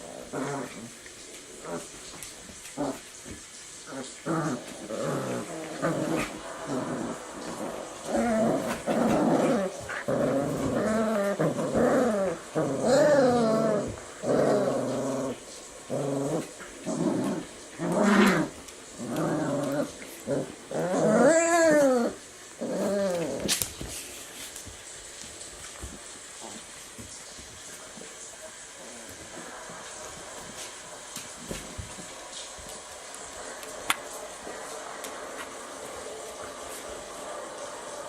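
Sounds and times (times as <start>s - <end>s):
puppies growling and whining: 0.0s - 3.1s, 3.8s - 23.8s.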